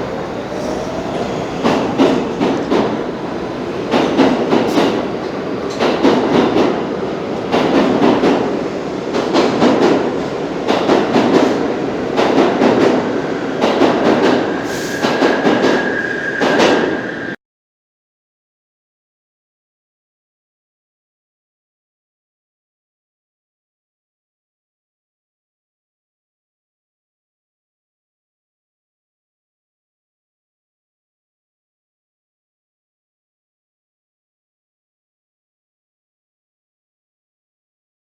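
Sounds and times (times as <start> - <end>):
subway train wheels clicking: 0.0 - 17.4.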